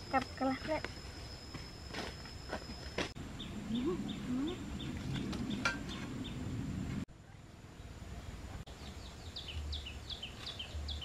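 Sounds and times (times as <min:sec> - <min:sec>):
low rumbling background: 0:00.0 - 0:11.0
bird chirping: 0:02.4 - 0:06.5, 0:08.7 - 0:11.0.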